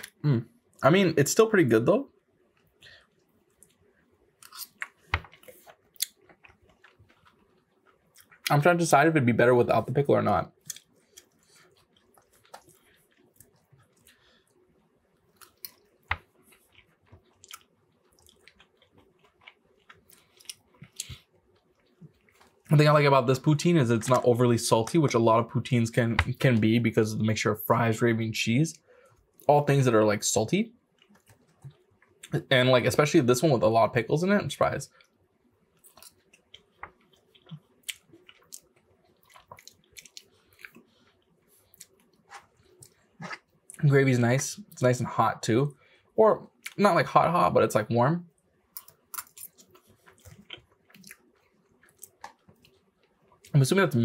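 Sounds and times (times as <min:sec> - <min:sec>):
wet chewing clicks and smacks: 0:02.5 - 0:08.5, 0:10.5 - 0:14.6, 0:15.2 - 0:22.7, 0:30.9 - 0:32.3, 0:35.8 - 0:43.8, 0:48.3 - 0:53.5.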